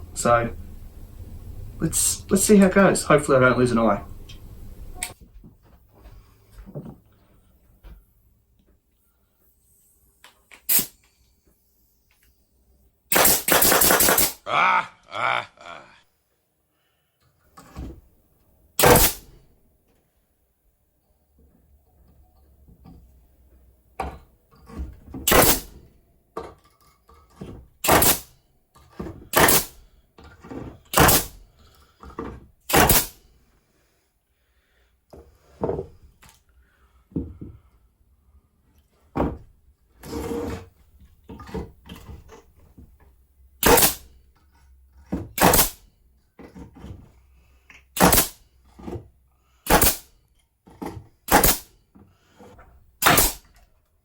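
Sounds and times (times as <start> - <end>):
pneumatic denailer thunks: 10.5 - 11.1, 18.8 - 19.4, 25.1 - 25.9, 27.8 - 28.4, 29.0 - 33.2, 43.6 - 44.2, 45.3 - 45.8, 48.0 - 48.4, 49.6 - 50.1, 51.2 - 51.7, 53.0 - 53.6.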